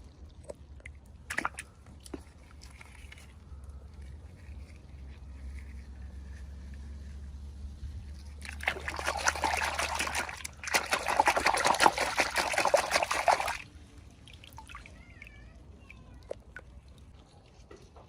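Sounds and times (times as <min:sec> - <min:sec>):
liquid being poured: 0:08.4 - 0:15.3.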